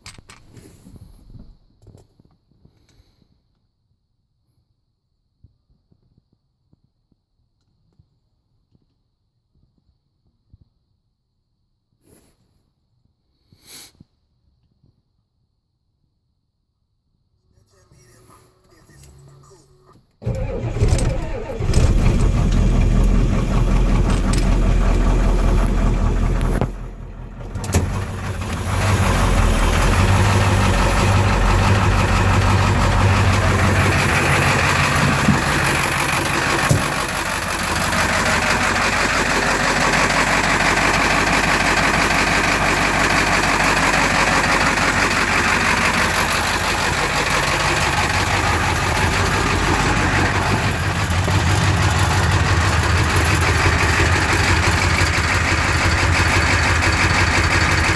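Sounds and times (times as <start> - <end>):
diesel engine cold starting: 20.2 - 57.9
diesel engine idling: 20.2 - 57.9.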